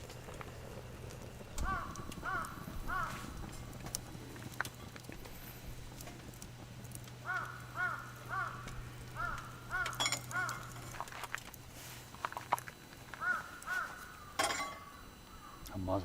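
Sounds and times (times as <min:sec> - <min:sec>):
faint low hum: 0:00.0 - 0:16.0
crow cawing: 0:01.6 - 0:03.4, 0:07.2 - 0:11.0, 0:13.1 - 0:15.7.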